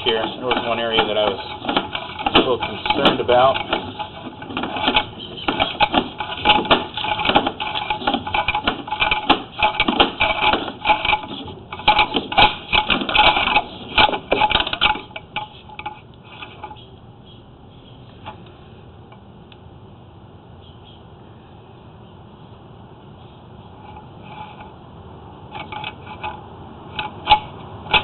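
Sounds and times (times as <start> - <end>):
camera cable rattling in drain: 0.0 - 16.7.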